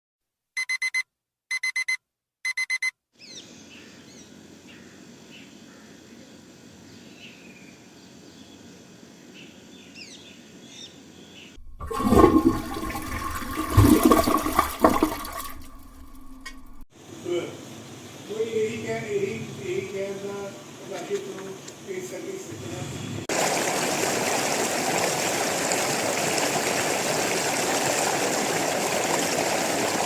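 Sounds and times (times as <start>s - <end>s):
alarm clock beeping: 0.6s - 2.9s
toilet flushing: 11.6s - 16.8s, 23.3s - 30.0s.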